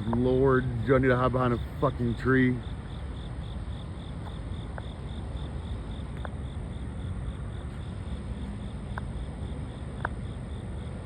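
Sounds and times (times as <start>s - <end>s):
distant traffic rumble: 0.0s - 11.0s
insect pulsing song: 0.0s - 11.0s.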